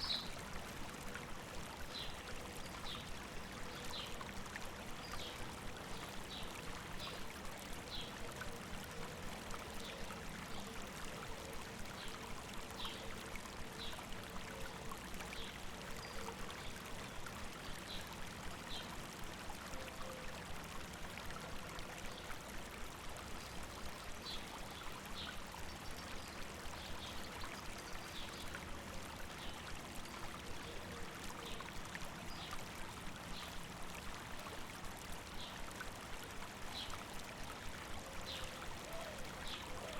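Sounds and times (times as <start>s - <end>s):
river babbling: 0.0s - 39.9s.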